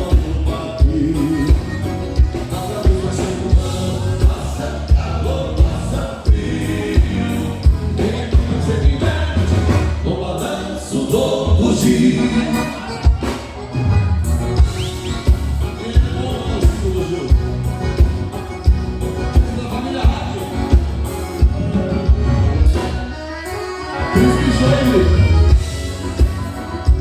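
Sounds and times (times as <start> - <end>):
steady drum beat: 0.0 - 10.1, 11.5 - 23.2, 24.2 - 27.0
group singing: 0.0 - 13.5, 19.2 - 27.0
live amplified band music: 0.0 - 27.0.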